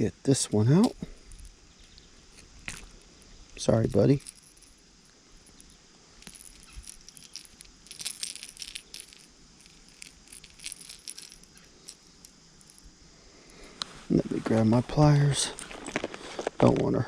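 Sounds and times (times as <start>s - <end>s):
fishing lure hooks rattling: 0.8s - 3.0s, 3.9s - 13.0s.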